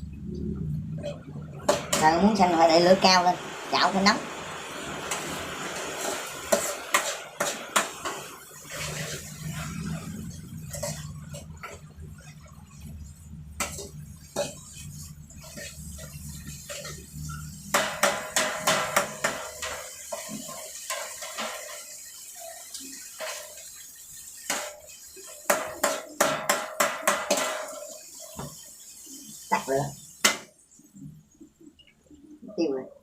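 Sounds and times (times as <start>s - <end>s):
low steady hum: 0.0s - 5.5s, 8.6s - 18.5s
metal spatula scraping a wok: 4.9s - 12.4s, 13.6s - 23.8s.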